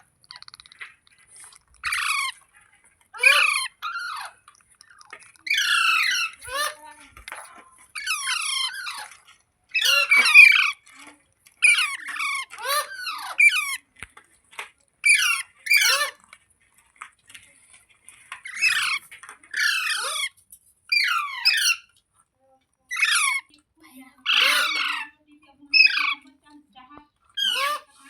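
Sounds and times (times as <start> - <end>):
parrot squawking: 0.0 - 2.5, 3.1 - 6.8, 7.9 - 10.9, 11.6 - 13.8, 15.0 - 16.2, 18.4 - 20.3, 20.9 - 21.9, 22.9 - 23.5, 24.2 - 26.2, 27.3 - 28.0.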